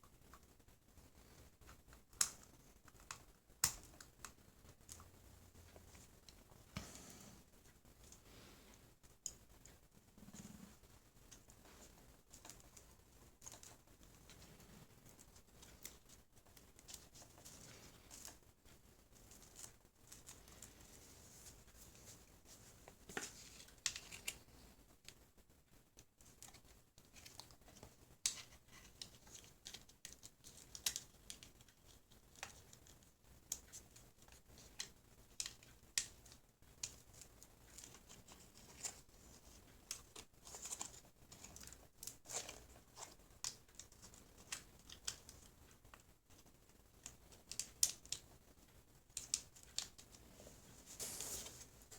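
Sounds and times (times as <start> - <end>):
light crinkling rustles: 0.2 - 25.4, 26.0 - 51.9
small clicks and taps: 1.3 - 7.0, 25.9 - 50.2.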